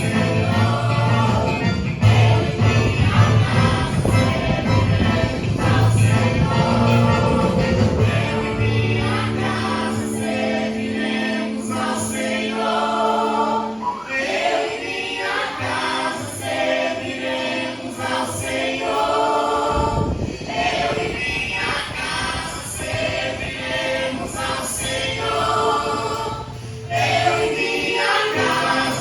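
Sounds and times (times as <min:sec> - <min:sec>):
instrumental accompaniment: 0:00.0 - 0:19.8
group singing gospel song: 0:00.0 - 0:29.0.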